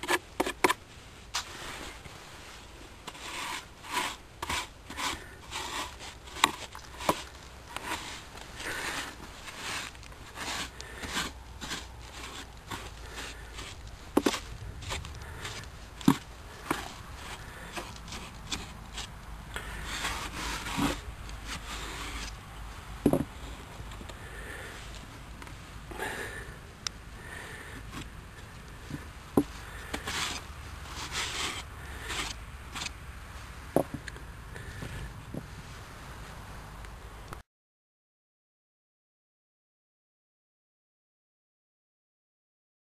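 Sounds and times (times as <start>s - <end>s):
wood scraping on wood: 0.0s - 22.4s, 23.0s - 26.5s, 27.2s - 35.6s.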